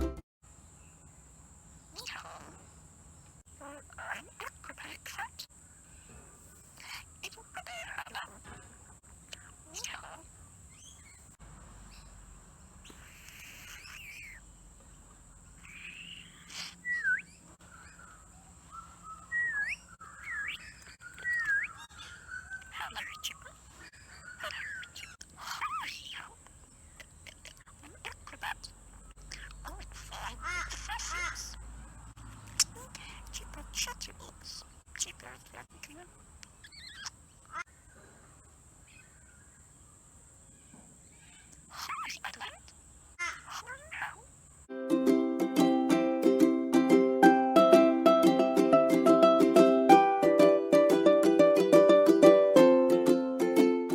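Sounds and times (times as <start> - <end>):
budgerigar chattering: 1.9 - 2.7, 3.5 - 5.5, 6.6 - 12.2, 12.8 - 14.5, 15.4 - 38.0, 38.9 - 39.6, 40.6 - 44.4
budgerigar swooping whistles: 15.7 - 18.1, 18.7 - 22.7.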